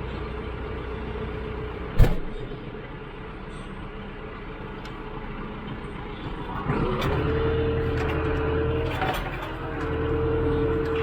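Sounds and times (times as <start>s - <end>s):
tractor engine running: 0.0s - 11.0s
sharp knocks: 2.0s - 2.6s.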